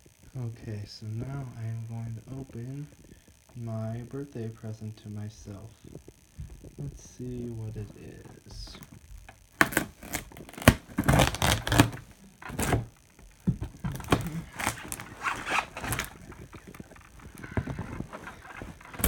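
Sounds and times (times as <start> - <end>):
packaging tearing and rustling: 9.6 - 12.9, 13.7 - 19.0.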